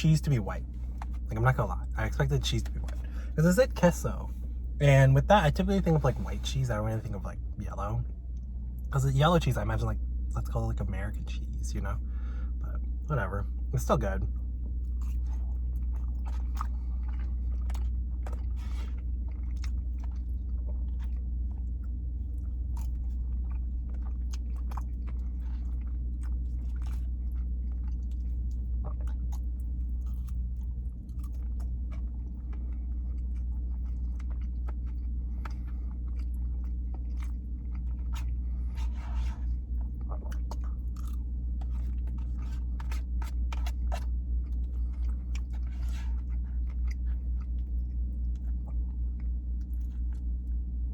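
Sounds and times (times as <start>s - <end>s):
steady low hum: 0.0s - 50.9s
person chewing food: 0.1s - 7.2s, 14.3s - 50.8s.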